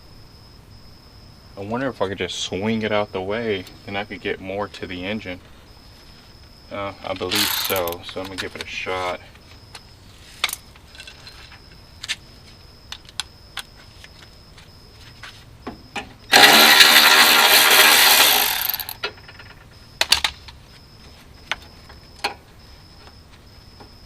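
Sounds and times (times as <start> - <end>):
handheld power tool running: 7.3 - 8.0, 16.3 - 19.0
metallic clicks of hand tools: 7.3 - 8.2.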